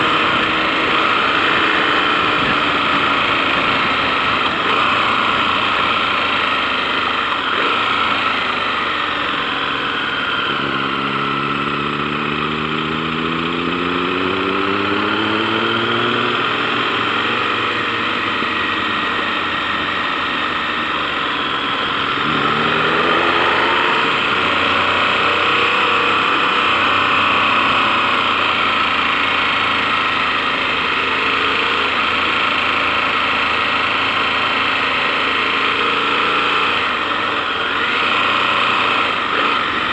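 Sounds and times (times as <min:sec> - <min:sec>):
motorcycle engine accelerating: 0:00.0 - 0:39.9
rushing wind noise: 0:02.2 - 0:04.9.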